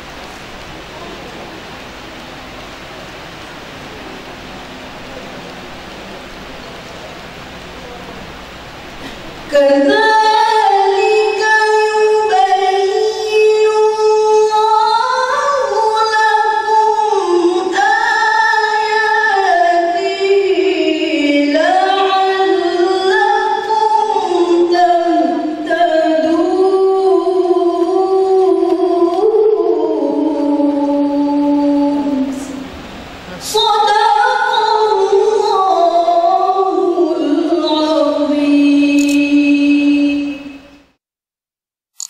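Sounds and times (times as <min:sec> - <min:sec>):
steady hiss: 0:00.0 - 0:41.0
woman reciting melodically: 0:08.1 - 0:40.8.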